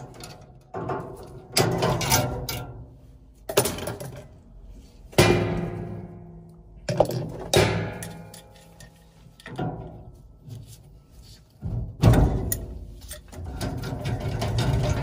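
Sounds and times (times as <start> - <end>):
metal clanks on gas furnace: 11.8 - 15.0.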